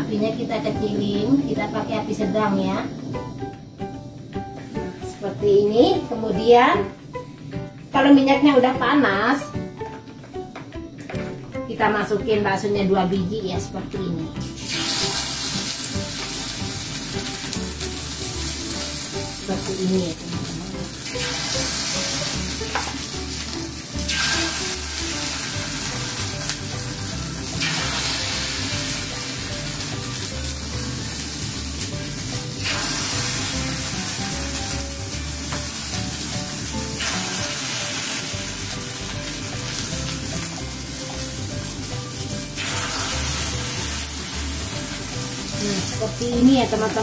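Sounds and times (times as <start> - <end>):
batter sizzling in hot oil: 14.4 - 47.0.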